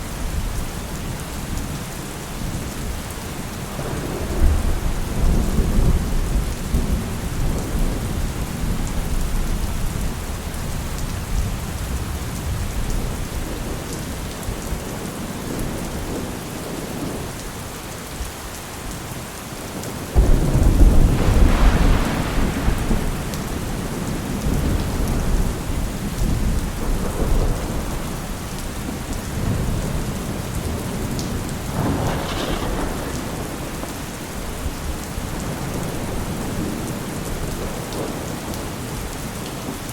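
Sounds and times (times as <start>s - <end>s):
rain falling: 0.0s - 39.9s
thunder rumbling: 3.6s - 16.4s, 20.1s - 39.1s.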